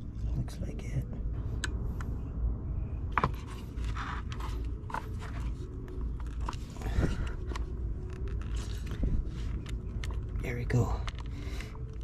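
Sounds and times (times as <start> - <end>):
low rumble: 0.0 - 12.0
plastic parts clicking: 6.2 - 12.0.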